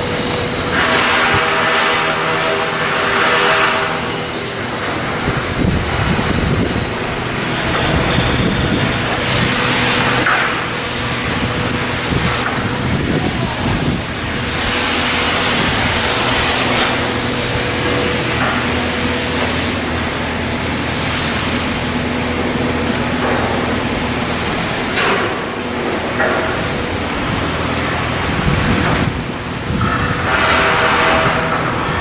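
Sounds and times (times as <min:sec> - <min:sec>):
loud rushing noise: 0:00.0 - 0:32.0
machinery hum: 0:00.0 - 0:32.0.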